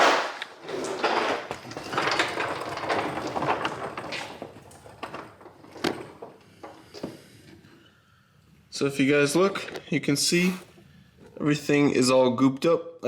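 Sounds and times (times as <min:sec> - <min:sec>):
scraping and clattering: 0:00.0 - 0:07.8.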